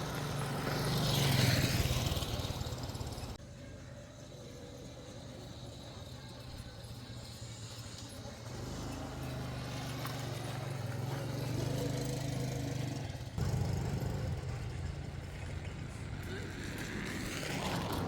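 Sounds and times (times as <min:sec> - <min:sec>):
vehicle engine running: 0:05.0 - 0:18.0.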